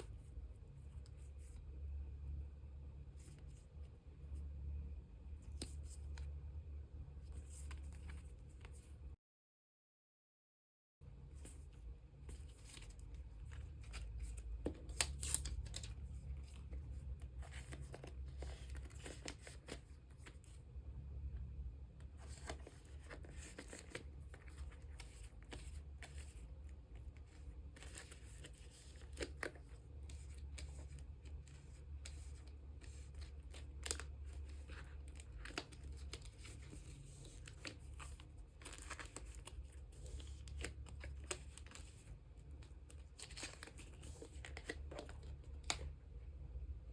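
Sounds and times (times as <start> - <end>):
low steady hum: 0.0 - 9.2, 11.0 - 46.9
plastic sleeves crinkling: 12.2 - 20.6, 22.1 - 46.0.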